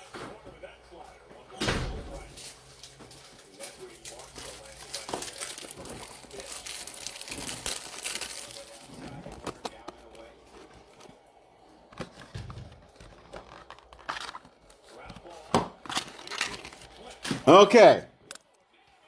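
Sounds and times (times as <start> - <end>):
plastic packaging crinkling: 2.2 - 18.6.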